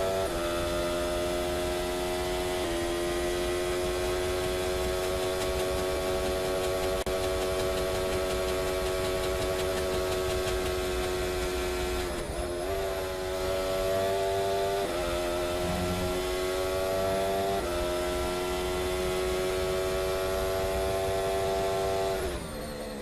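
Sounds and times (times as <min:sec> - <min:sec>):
steady mechanical drone: 0:00.0 - 0:23.0.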